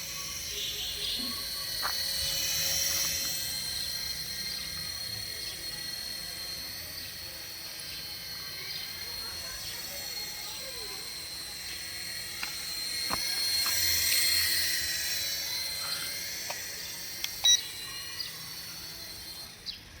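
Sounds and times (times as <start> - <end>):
electric toy motor whining: 0.0 - 20.0
clicks: 16.4 - 17.6.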